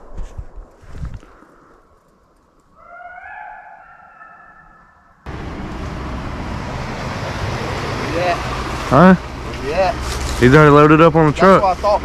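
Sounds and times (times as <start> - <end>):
hound howling: 2.8 - 5.2
vehicle running noise: 5.2 - 12.0.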